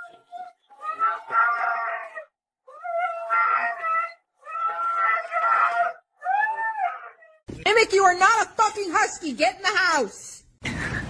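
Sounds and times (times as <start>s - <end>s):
dog howling: 0.0s - 7.5s.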